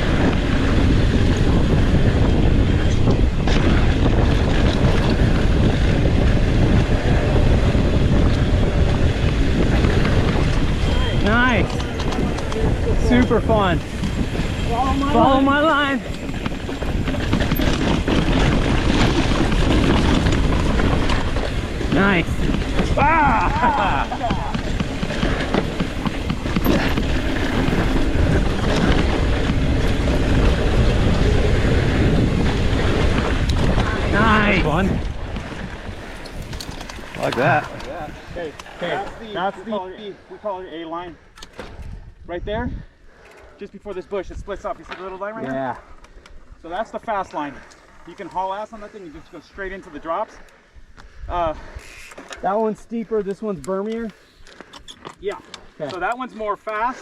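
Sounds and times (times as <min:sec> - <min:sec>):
tyres rolling over rough ground: 0:00.0 - 0:40.0
wind buffeting microphone: 0:00.0 - 0:43.2
low rumble of bike ride: 0:00.0 - 0:57.0
small clicks from bike: 0:01.1 - 0:07.0, 0:11.6 - 0:14.6, 0:16.0 - 0:23.0, 0:23.7 - 0:34.0, 0:35.3 - 0:39.3, 0:41.3 - 0:42.0, 0:43.2 - 0:43.8, 0:45.9 - 0:49.5, 0:50.3 - 0:57.0.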